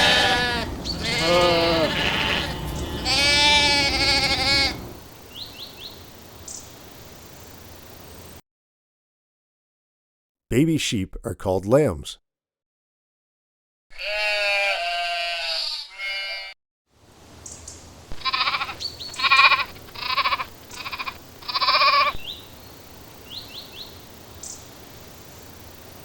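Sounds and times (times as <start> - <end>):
sheep bleating: 0.0 - 5.0, 13.9 - 16.6, 18.1 - 22.2
faint steady hiss: 0.3 - 8.4, 17.0 - 26.0.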